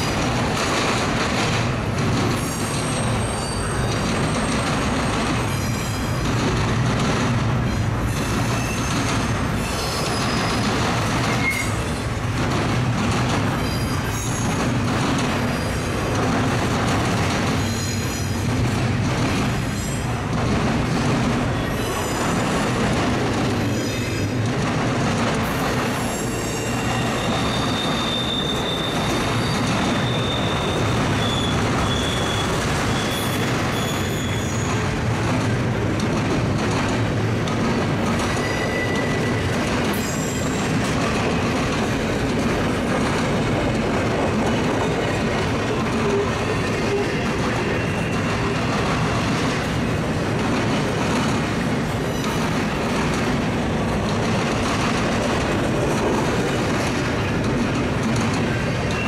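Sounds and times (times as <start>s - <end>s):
freight train wheels clacking: 0.0s - 59.0s
wheel squeal: 2.4s - 6.2s, 8.1s - 11.9s, 26.0s - 34.8s, 38.2s - 40.7s.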